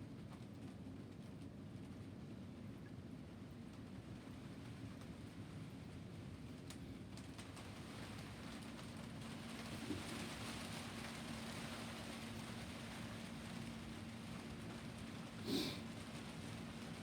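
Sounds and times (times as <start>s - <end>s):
steady rain falling: 3.6s - 17.0s.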